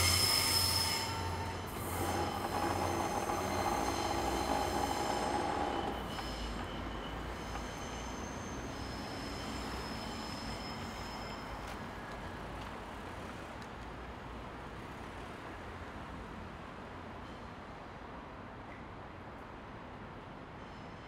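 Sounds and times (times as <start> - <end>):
high-pitched wheel squeal: 0.0 - 11.7
train running past: 0.0 - 18.5.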